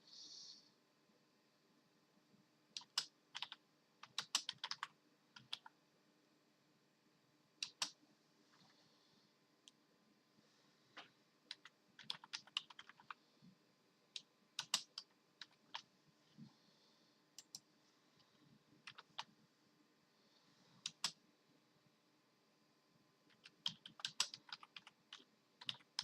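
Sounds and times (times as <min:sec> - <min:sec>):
computer keyboard keys clicking: 0:02.8 - 0:05.7, 0:07.6 - 0:08.0, 0:11.5 - 0:13.2, 0:14.2 - 0:15.8, 0:18.9 - 0:19.3, 0:20.9 - 0:21.2, 0:23.3 - 0:26.0.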